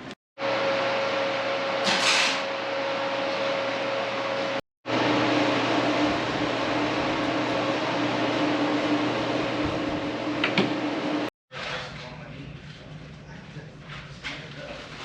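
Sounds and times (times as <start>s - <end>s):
motor running with low hum: 2.8s - 11.3s.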